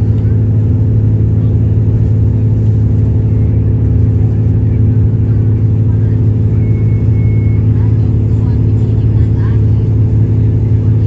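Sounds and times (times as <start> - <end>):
diesel railcar engine drone: 0.0 - 11.0.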